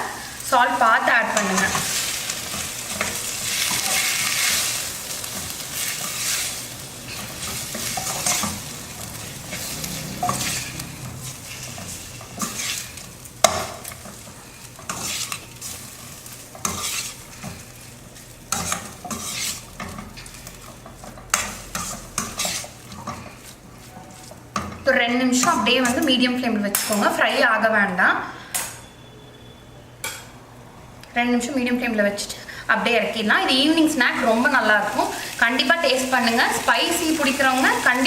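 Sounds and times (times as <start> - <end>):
food sizzling: 0.0 - 27.7, 31.5 - 38.0
spoon scraping a pan: 1.3 - 27.1.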